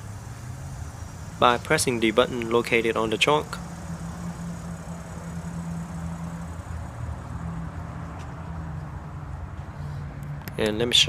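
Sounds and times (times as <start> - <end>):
low mechanical hum of car: 0.0 - 11.0.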